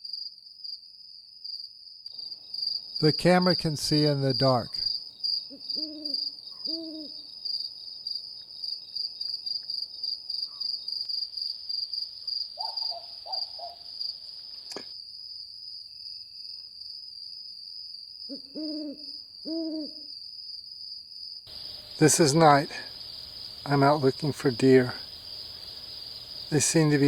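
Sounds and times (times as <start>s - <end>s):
night insects trilling: 0.0s - 27.0s
owl hooting: 5.5s - 7.3s, 12.6s - 13.9s, 18.3s - 20.1s.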